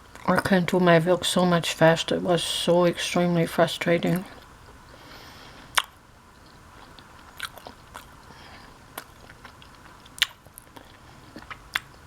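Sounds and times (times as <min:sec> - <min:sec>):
person chewing a sandwich: 0:05.6 - 0:12.0.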